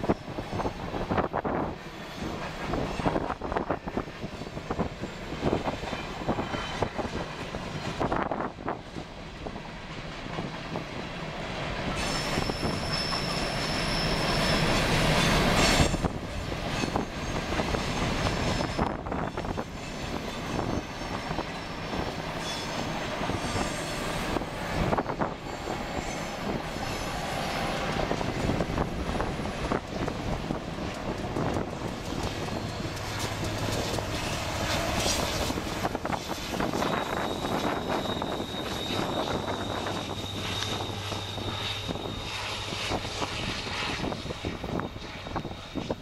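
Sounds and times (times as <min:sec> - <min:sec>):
train wheels rumbling on rails: 0:00.0 - 0:46.0
high wheel squeal: 0:11.9 - 0:16.1, 0:16.7 - 0:30.1, 0:32.0 - 0:46.0.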